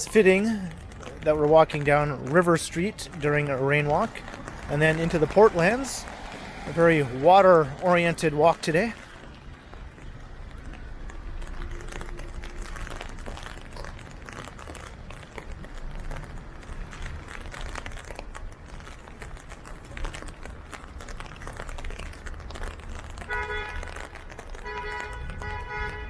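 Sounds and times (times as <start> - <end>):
rain on an umbrella: 0.0 - 26.0.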